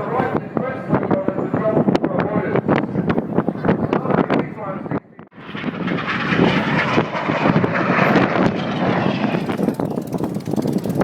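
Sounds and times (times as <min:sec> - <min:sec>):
jet passing overhead: 0:05.3 - 0:11.0.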